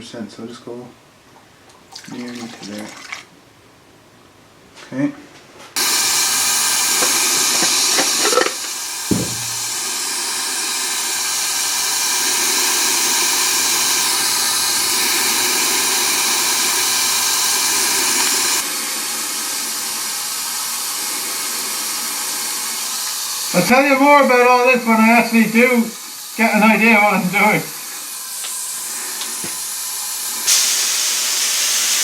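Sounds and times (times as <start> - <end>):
spray gun hissing: 5.8 - 32.0
short knock: 9.1 - 9.8.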